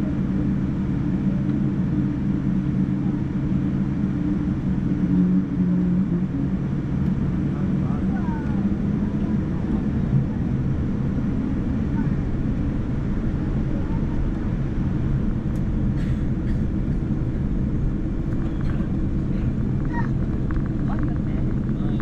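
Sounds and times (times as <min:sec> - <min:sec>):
airplane cabin engine rumble: 0:00.0 - 0:22.0.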